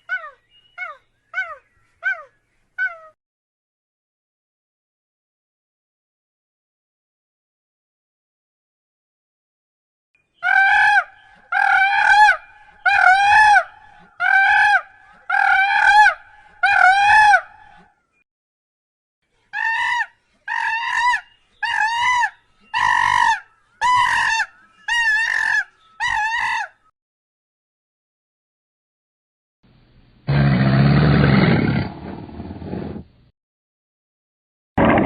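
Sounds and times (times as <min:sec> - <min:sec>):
farm bird calling: 0:00.0 - 0:03.2, 0:10.2 - 0:17.8, 0:19.6 - 0:26.9.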